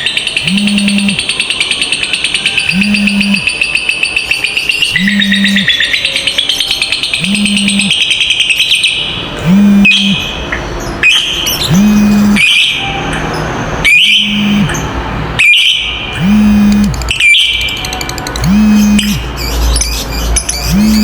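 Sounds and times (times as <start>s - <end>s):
lovebirds chattering: 0.0s - 21.0s
low droning tone: 0.4s - 1.2s, 2.7s - 3.4s, 5.0s - 5.7s, 7.2s - 7.9s, 9.4s - 10.2s, 11.7s - 12.4s, 14.2s - 14.8s, 16.2s - 17.0s, 18.4s - 19.3s, 20.7s - 21.0s.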